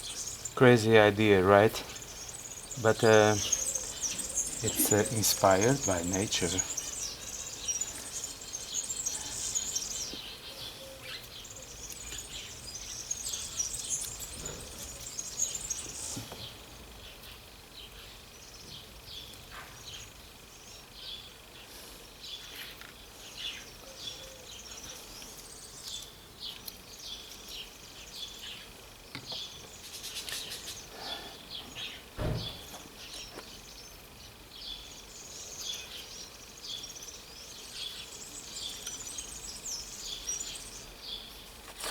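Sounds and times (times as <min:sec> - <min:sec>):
birds chirping and singing: 0:00.0 - 0:41.9
dull knock: 0:32.2 - 0:32.7.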